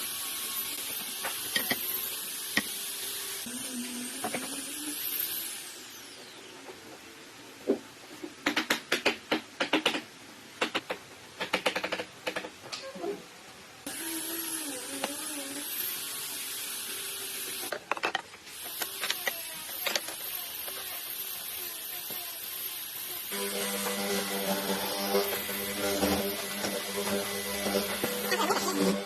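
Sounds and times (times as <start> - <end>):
electric power tool whining: 18.5 - 29.0.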